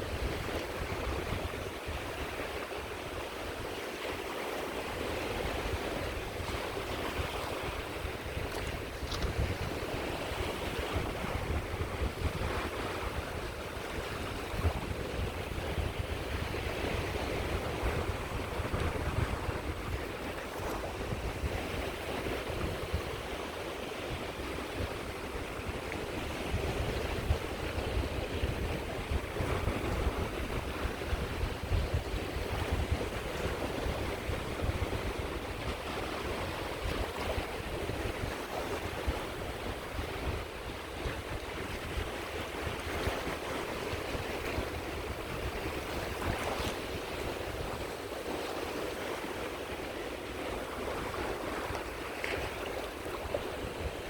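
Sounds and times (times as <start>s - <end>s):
sea waves washing onto shore: 0.0s - 54.0s
wind noise on microphone: 0.0s - 54.0s.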